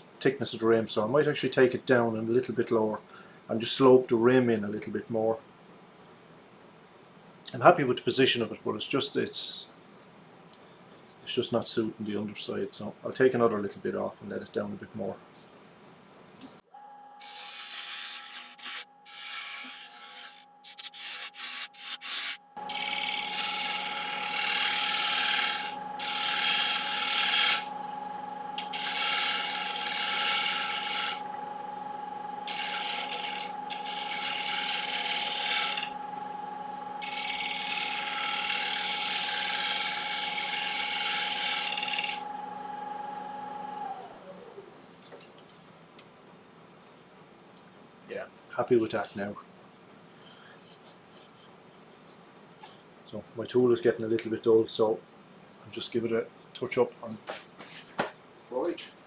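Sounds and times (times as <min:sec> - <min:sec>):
turning tool scraping wood: 0:17.2 - 0:31.4, 0:32.3 - 0:36.0, 0:37.0 - 0:42.4
lathe motor humming: 0:22.6 - 0:44.2.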